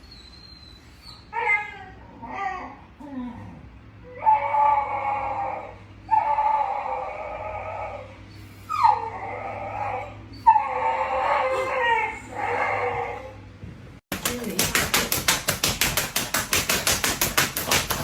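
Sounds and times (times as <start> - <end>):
dog howling: 4.0 - 13.4.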